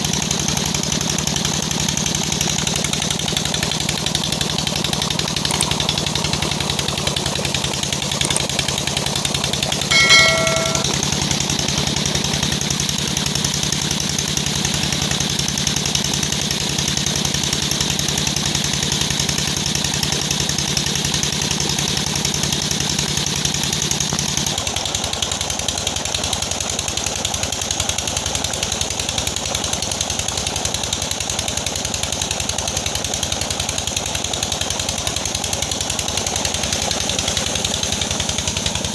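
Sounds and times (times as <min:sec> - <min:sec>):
high pitched tone: 0:09.9 - 0:10.9.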